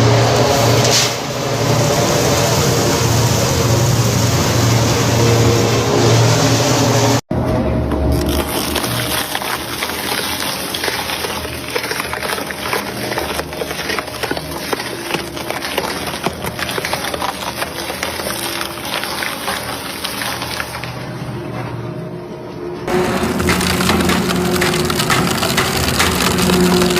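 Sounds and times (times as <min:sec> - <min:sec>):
material being crushed: 0:08.0 - 0:21.2, 0:22.9 - 0:26.9
shredder motor humming: 0:22.9 - 0:26.9.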